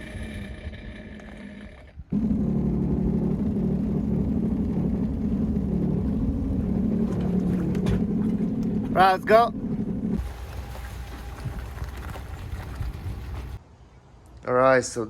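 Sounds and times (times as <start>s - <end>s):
engine running steadily: 2.1s - 13.6s.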